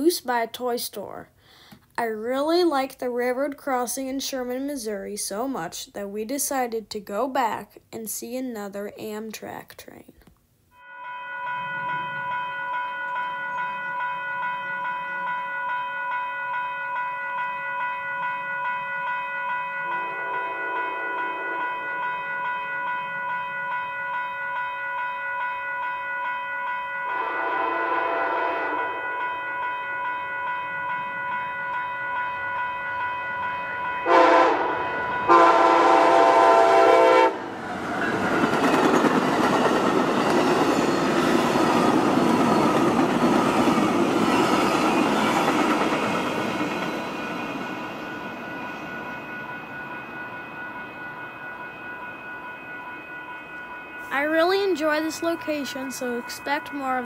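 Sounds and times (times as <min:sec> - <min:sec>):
railroad crossing bells ringing: 0:10.8 - 0:57.0
locomotive horn blasts: 0:27.1 - 0:29.2, 0:34.0 - 0:37.5
train wheels rumbling and clacking: 0:37.6 - 0:48.2.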